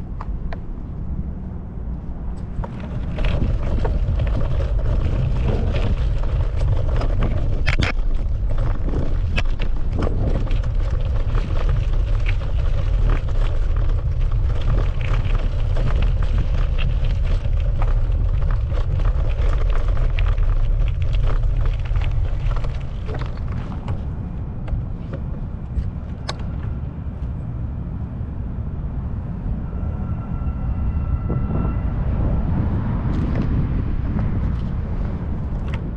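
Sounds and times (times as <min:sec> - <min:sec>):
wind buffeting microphone: 0:00.0 - 0:35.9
bicycle rattles and clicks: 0:02.3 - 0:27.5, 0:33.0 - 0:35.9.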